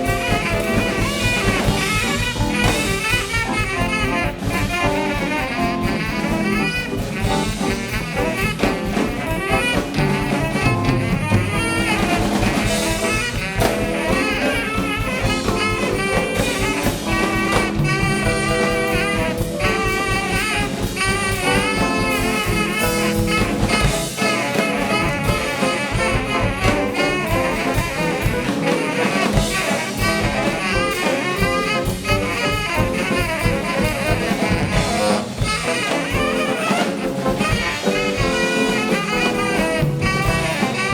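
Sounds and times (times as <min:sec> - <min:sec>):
deep bass: 0:00.0 - 0:13.8
brass: 0:00.0 - 0:40.9
drum kit: 0:00.0 - 0:40.9
saxophone: 0:00.0 - 0:40.9.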